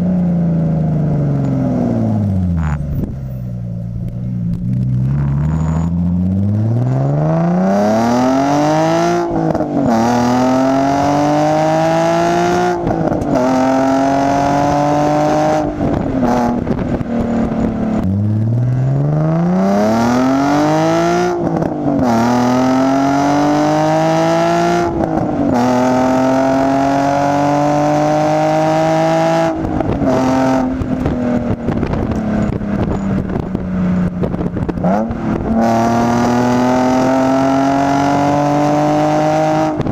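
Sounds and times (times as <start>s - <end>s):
exhaust crackling: 0.0s - 39.9s
car engine revving through gears: 4.1s - 39.9s.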